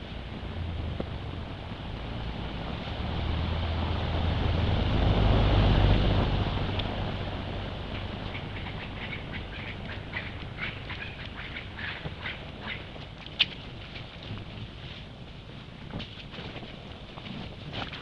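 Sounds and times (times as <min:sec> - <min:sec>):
motor vehicle passing by: 0:00.0 - 0:13.7.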